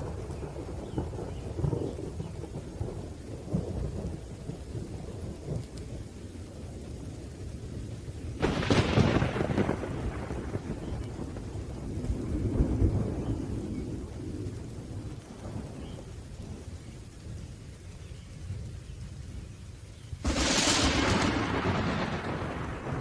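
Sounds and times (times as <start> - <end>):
rolling thunder: 0.0 - 6.1, 7.1 - 17.5, 20.2 - 23.0
steady rain: 0.0 - 23.0
sharp thunderclap: 8.4 - 14.1, 20.2 - 23.0.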